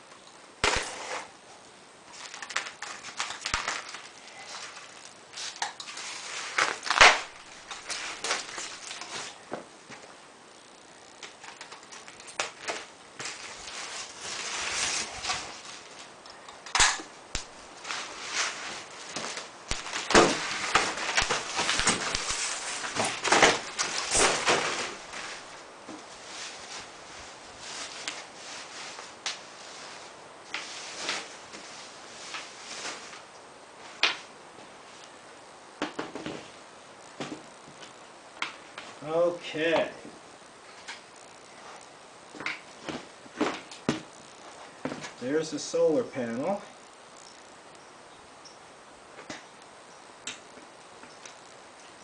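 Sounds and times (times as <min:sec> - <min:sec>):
packaging crinkling: 0:02.1 - 0:09.4, 0:16.7 - 0:25.6.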